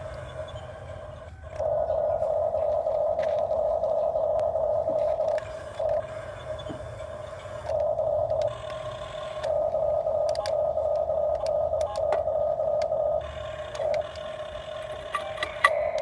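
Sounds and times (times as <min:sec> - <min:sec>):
excavator drive whining: 0:00.0 - 0:16.0
clicks: 0:07.6 - 0:16.0.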